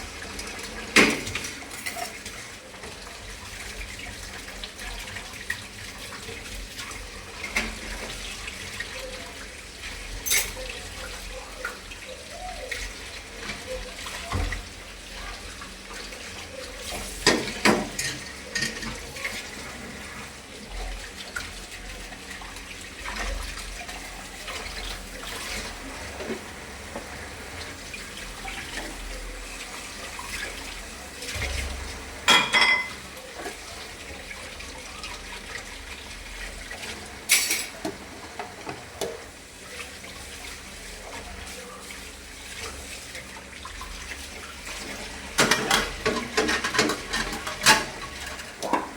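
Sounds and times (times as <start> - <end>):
water running from tap: 0.0 - 48.9
dishes clinking and clattering: 0.6 - 3.0, 10.1 - 11.8, 16.0 - 19.8, 31.2 - 33.7, 36.7 - 39.3, 44.8 - 48.9.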